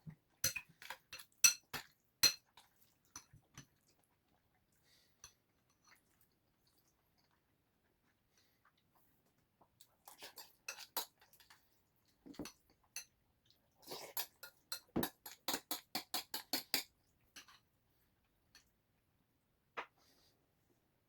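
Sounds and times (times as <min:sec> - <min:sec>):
spoon clinking against dish: 0:00.4 - 0:02.5, 0:14.2 - 0:17.6.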